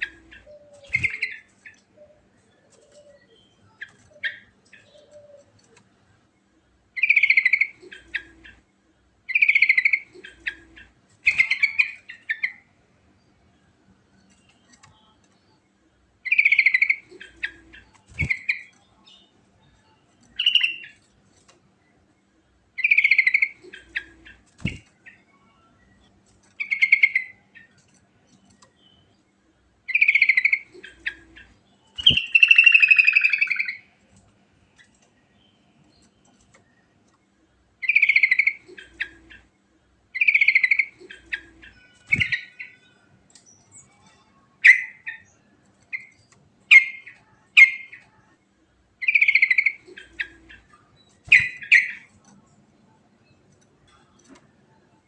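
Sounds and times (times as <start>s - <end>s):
bulbul singing warbled phrases: 40.2s - 42.8s, 46.7s - 48.2s, 49.0s - 52.1s.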